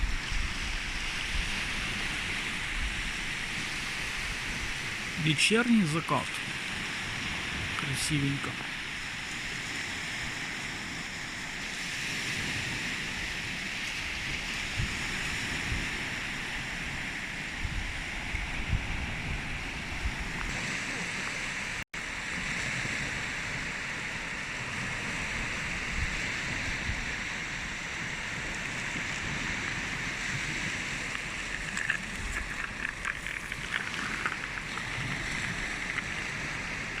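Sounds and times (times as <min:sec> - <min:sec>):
sea waves washing on shore: 0:00.0 - 0:37.0
wind buffeting microphone: 0:08.6 - 0:23.8, 0:24.6 - 0:37.0.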